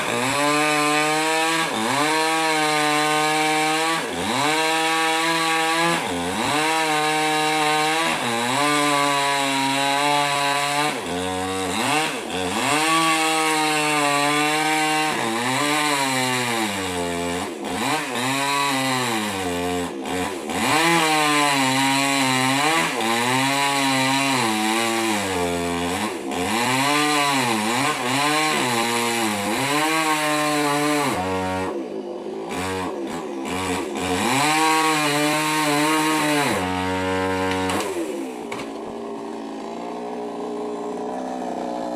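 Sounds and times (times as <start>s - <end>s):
chainsaw cutting wood: 0.0s - 41.9s.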